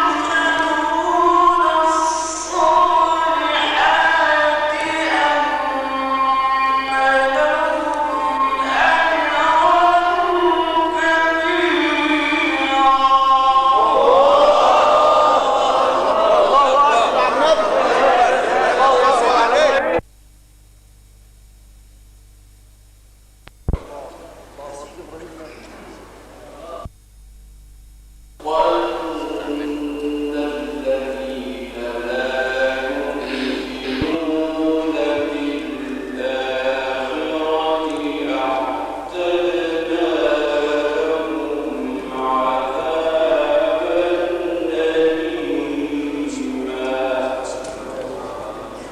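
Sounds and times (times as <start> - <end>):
man chanting melodically: 0.0 - 20.0, 26.5 - 26.9, 28.4 - 48.9.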